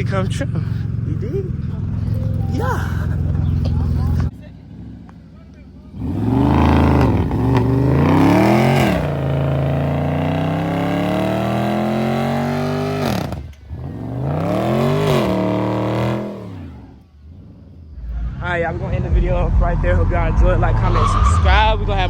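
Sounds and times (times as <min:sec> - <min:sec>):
car engine revving loud: 0:05.9 - 0:18.0.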